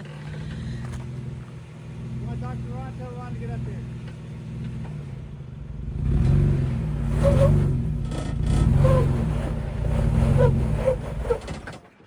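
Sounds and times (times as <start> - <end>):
engine revving: 0.0 - 11.8
short squeaks: 10.2 - 11.9.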